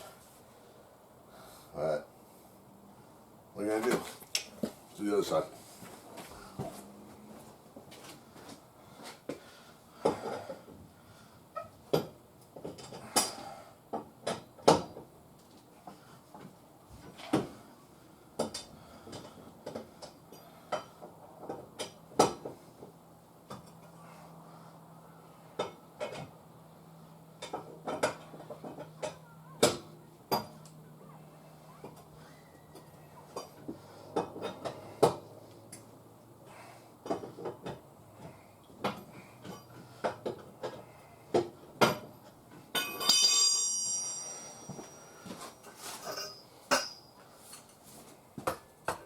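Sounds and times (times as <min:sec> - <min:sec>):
metal clanks and knocks: 0:41.8 - 0:47.1
metallic clinks of tools: 0:42.7 - 0:47.8.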